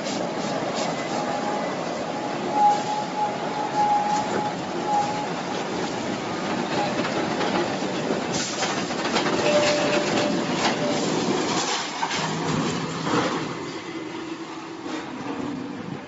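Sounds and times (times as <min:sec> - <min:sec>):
heavy machinery rumbling: 0:00.0 - 0:15.4
rapid clattering knocks: 0:06.4 - 0:13.4.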